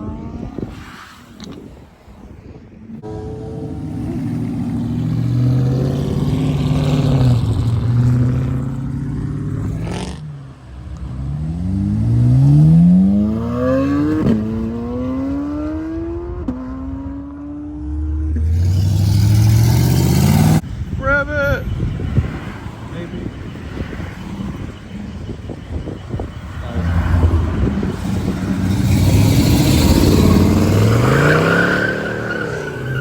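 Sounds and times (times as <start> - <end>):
car engine accelerating hard: 11.0 - 20.6, 26.6 - 33.0.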